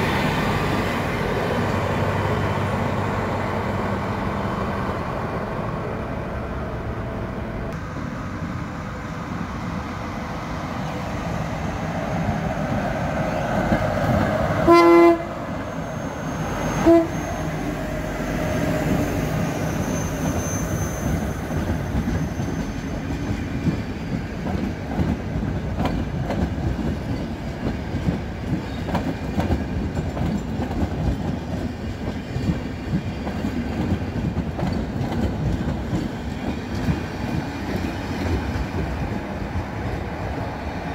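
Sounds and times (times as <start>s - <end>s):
train wheels rumbling on rails: 0.0s - 40.9s
train horn: 14.6s - 15.4s, 16.7s - 17.4s.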